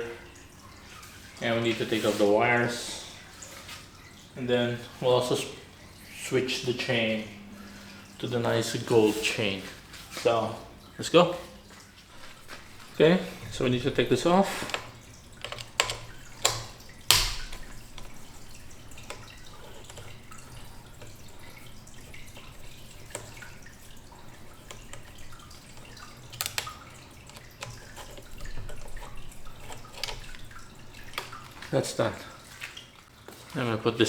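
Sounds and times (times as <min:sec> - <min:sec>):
tool clicking on metal bike parts: 0:13.5 - 0:18.2, 0:25.7 - 0:30.4.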